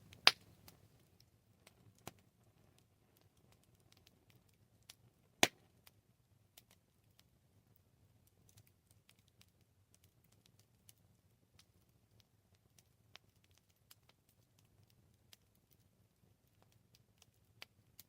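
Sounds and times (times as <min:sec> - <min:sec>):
campfire crackling: 0:00.0 - 0:18.0
low fire rumble: 0:00.0 - 0:18.0
loud pop from burning wood: 0:00.1 - 0:00.5.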